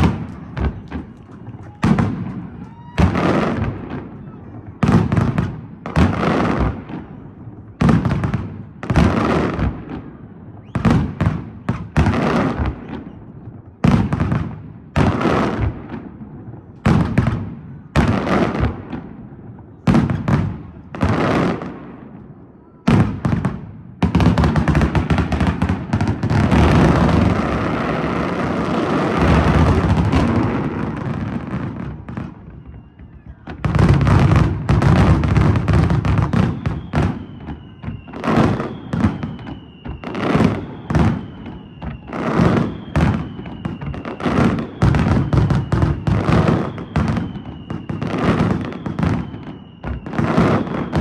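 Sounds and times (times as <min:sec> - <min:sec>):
falling firework whistles: 0:00.0 - 0:06.8, 0:09.0 - 0:14.2, 0:24.1 - 0:51.0
fireworks booming and crackling: 0:00.0 - 0:51.0.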